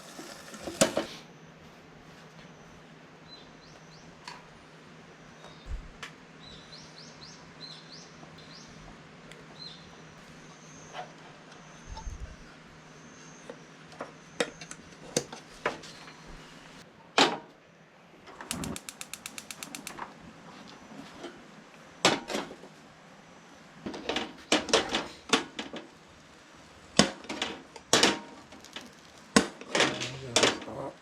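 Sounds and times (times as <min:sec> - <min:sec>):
utensils and dishes clicking: 0:18.5 - 0:20.0.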